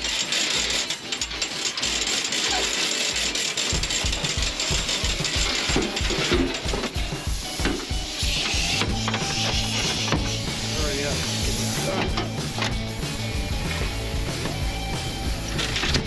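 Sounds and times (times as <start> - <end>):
fast ratchet clicking: 0.0 - 16.0
low thumping beat: 3.8 - 16.0.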